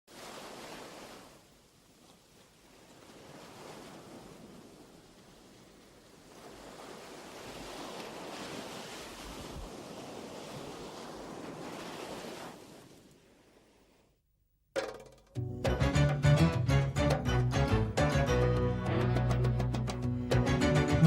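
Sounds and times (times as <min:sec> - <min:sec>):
waves breaking: 0:00.1 - 0:14.2.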